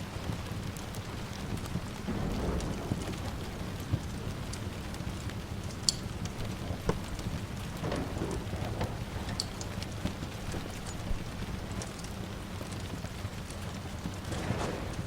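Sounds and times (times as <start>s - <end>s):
steady rain falling: 0.0s - 15.0s
wood fire crackling: 0.0s - 15.0s.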